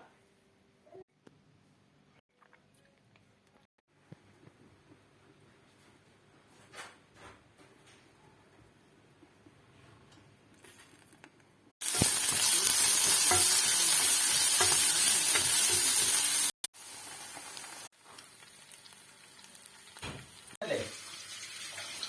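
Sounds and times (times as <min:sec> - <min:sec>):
food sizzling in hot oil: 0:11.8 - 0:22.0.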